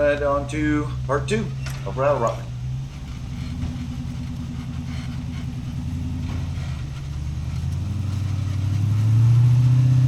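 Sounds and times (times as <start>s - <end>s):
engine revving: 0.9s - 10.0s.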